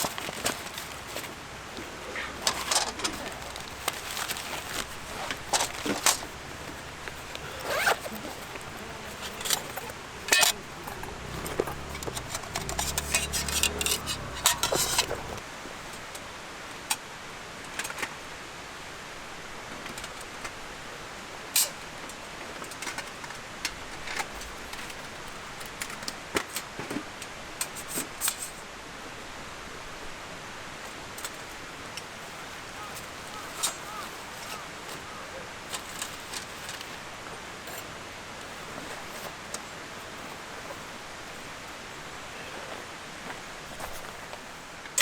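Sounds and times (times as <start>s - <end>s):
small clinks and knocks: 0.0s - 15.4s.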